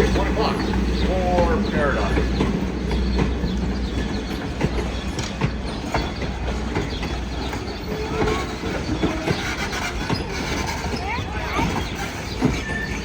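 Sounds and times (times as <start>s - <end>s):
train rumbling by: 0.0s - 13.0s
wheels clanking over rail joints: 0.0s - 13.0s
wheel squeal: 2.9s - 13.0s.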